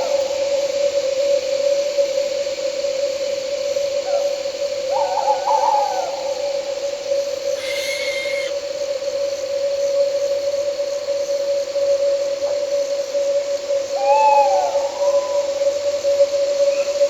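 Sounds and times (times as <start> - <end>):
crickets and night insects: 0.0 - 17.0
higher-pitched call: 7.5 - 8.5
owl hooting: 7.5 - 8.6.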